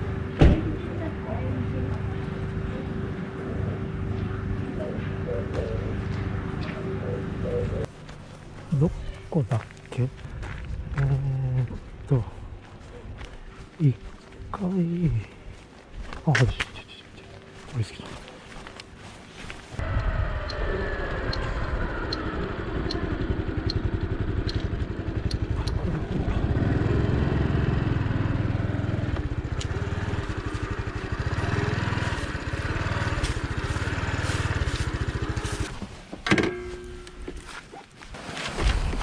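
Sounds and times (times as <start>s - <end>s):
motorcycle engine running: 19.8s - 35.9s.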